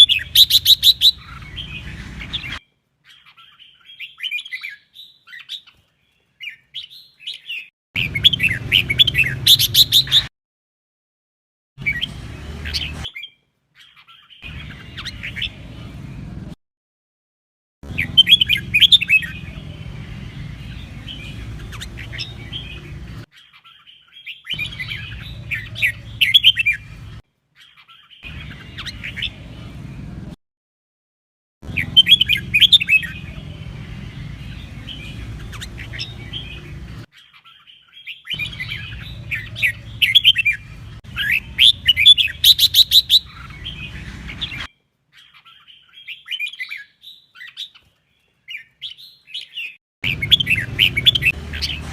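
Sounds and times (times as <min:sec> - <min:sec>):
bulbul singing warbling phrases: 0:00.0 - 0:05.4, 0:06.8 - 0:10.3, 0:17.9 - 0:27.1, 0:31.7 - 0:46.9, 0:49.4 - 0:51.9.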